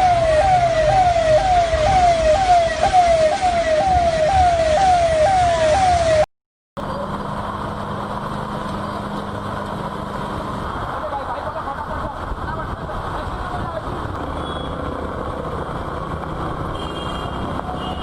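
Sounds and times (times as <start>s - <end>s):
emergency vehicle siren wailing: 0.0s - 6.3s
street noise hum: 0.0s - 18.0s.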